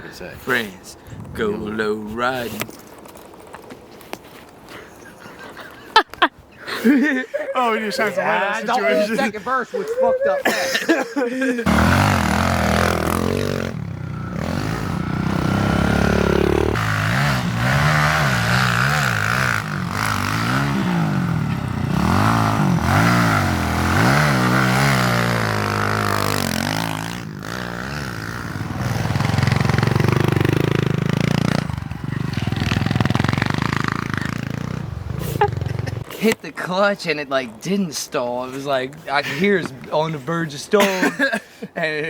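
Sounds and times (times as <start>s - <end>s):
pit bike engine revving: 11.7s - 36.1s.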